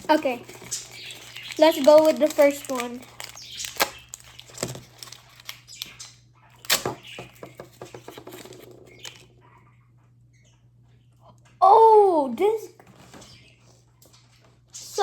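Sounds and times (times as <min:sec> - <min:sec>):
plastic packaging clicks and rustles: 0:00.0 - 0:09.3
plastic snaps: 0:01.2 - 0:09.3.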